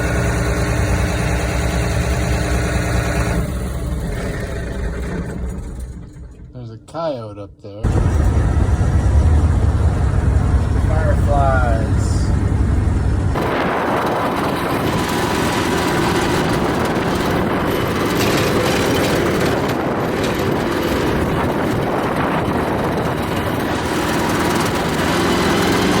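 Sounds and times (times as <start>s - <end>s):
engine running: 0.0s - 7.1s, 7.8s - 26.0s.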